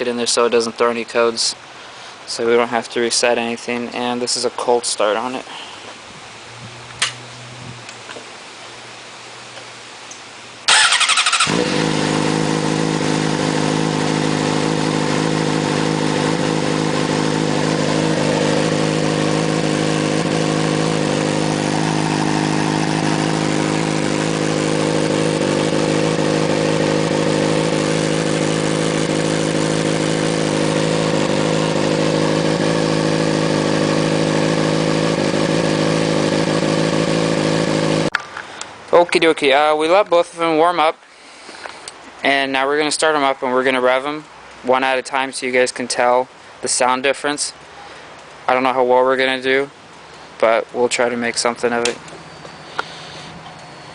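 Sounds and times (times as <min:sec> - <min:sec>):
motorcycle engine cranking: 0:10.7 - 0:15.5
motorcycle engine idling: 0:10.7 - 0:38.1.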